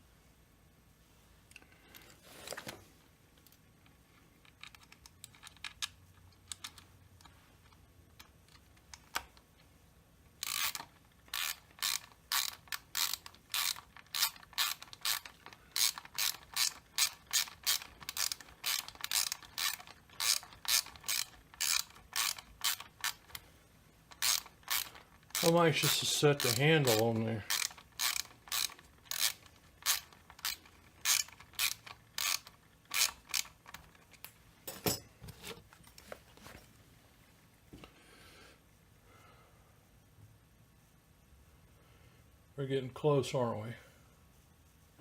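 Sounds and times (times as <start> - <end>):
ratchet clicking: 10.4 - 23.4, 24.1 - 33.9.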